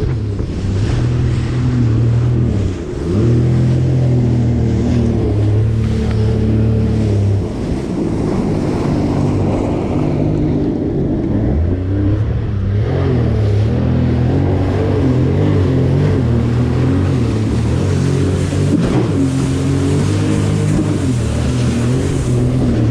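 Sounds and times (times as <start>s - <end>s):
jet ski engine running: 0.0s - 22.9s
rushing water: 0.0s - 22.9s
wind: 0.0s - 22.9s.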